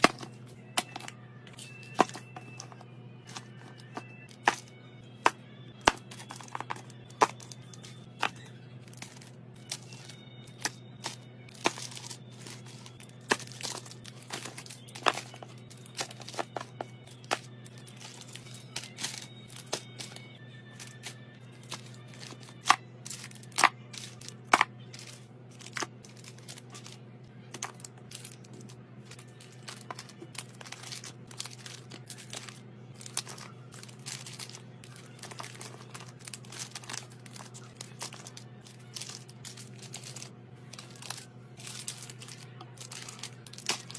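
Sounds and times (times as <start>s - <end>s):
steady low hum: 0.0s - 43.9s
wrappers crinkling: 7.3s - 20.2s, 27.6s - 43.9s.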